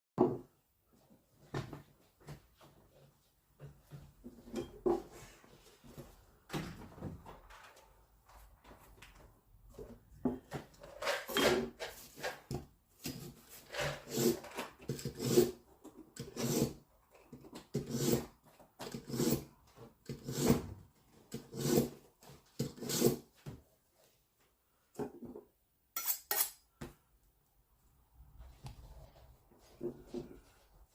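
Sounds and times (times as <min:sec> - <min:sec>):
knife scraping on sharpener: 0:15.0 - 0:15.6, 0:18.9 - 0:19.5, 0:22.6 - 0:23.2, 0:26.0 - 0:26.6.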